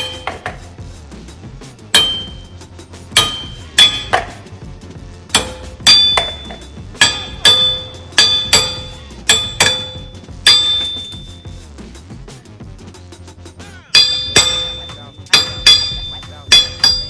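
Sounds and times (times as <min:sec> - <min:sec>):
hammer striking metal stud: 0:00.0 - 0:00.7, 0:02.0 - 0:04.5, 0:05.3 - 0:11.4, 0:14.0 - 0:17.0.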